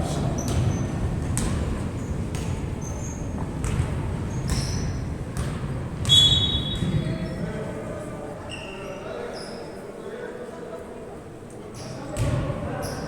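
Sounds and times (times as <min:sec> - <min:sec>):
basketball bouncing: 0:00.4 - 0:06.1
shoe squeaks: 0:02.8 - 0:03.3, 0:04.3 - 0:05.1, 0:06.1 - 0:07.4, 0:08.4 - 0:09.8, 0:11.8 - 0:12.1.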